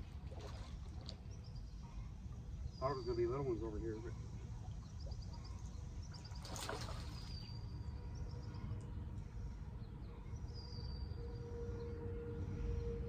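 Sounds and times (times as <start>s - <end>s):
bird chirping: 1.2s - 8.8s.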